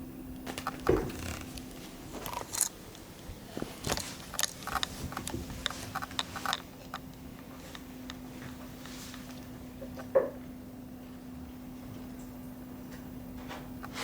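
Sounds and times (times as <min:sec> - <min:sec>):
steady low hum: 0:00.0 - 0:14.0
kittens playing: 0:00.4 - 0:10.0.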